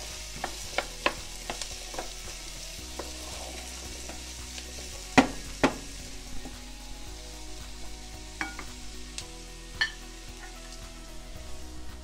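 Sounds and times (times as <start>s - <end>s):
vegetables sizzling in oil: 0.0s - 12.0s
spoon knocking on pan: 5.2s - 5.9s, 8.4s - 8.8s.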